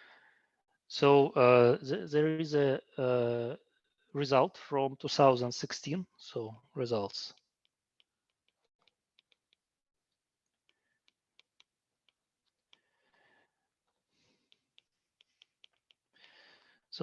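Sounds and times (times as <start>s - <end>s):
faint clicks of writing: 7.0s - 16.8s.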